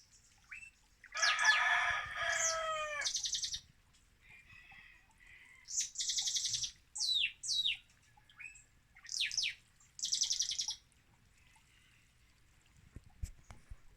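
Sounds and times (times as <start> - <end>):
songbird trilling and whistling: 2.4 - 3.6, 5.7 - 7.8, 8.4 - 10.8.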